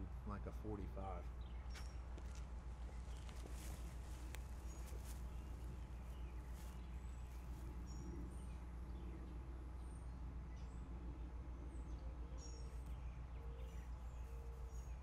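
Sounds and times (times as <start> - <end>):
bird chirps: 2.9 - 10.9, 11.7 - 15.0.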